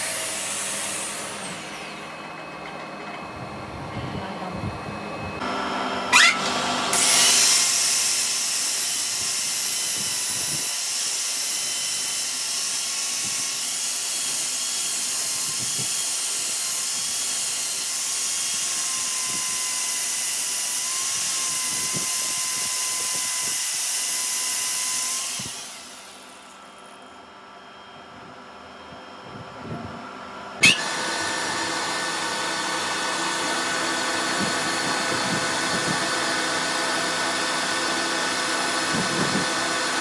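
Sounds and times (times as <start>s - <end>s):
power tool whining: 0.0s - 27.1s, 30.6s - 40.0s
power tool hiss: 6.9s - 26.6s, 30.6s - 38.2s.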